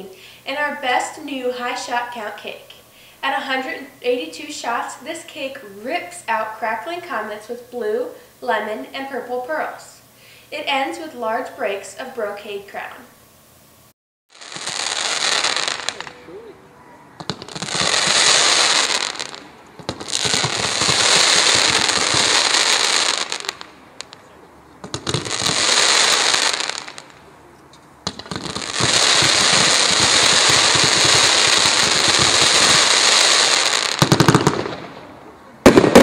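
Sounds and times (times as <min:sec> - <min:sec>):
fireworks crackling: 0:14.3 - 0:16.5, 0:17.2 - 0:27.4, 0:28.0 - 0:36.0
fireworks bangs: 0:14.4 - 0:16.5, 0:17.1 - 0:27.3, 0:28.0 - 0:36.0.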